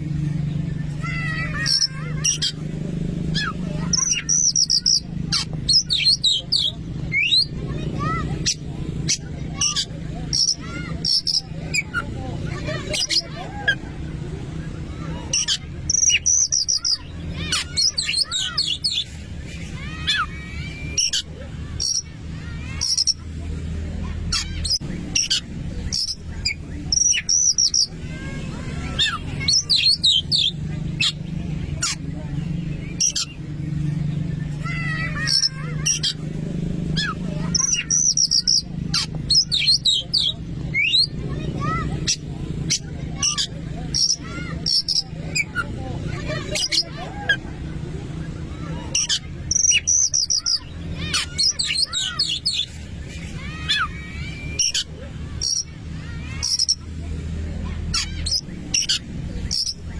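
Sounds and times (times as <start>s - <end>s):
magpie-robin singing: 0.5s - 13.9s, 14.9s - 23.3s, 24.2s - 47.6s, 48.2s - 56.9s, 57.9s - 59.9s
bird singing whistled notes: 3.4s - 5.1s.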